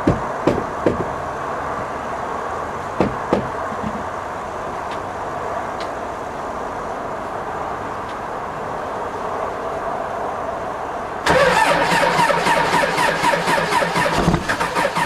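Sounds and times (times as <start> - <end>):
diesel engine clattering: 11.2 - 15.0
diesel engine cranking: 11.2 - 15.0.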